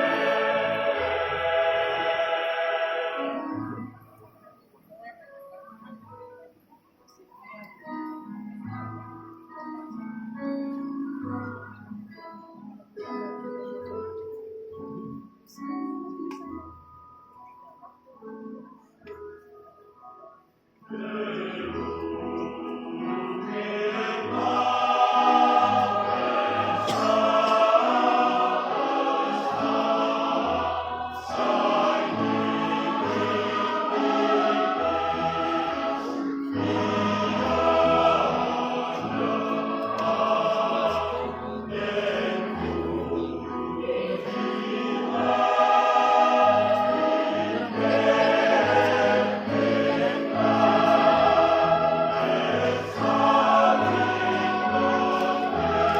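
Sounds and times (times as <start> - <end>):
choir singing in harmony: 0.0 - 5.2, 20.8 - 55.9.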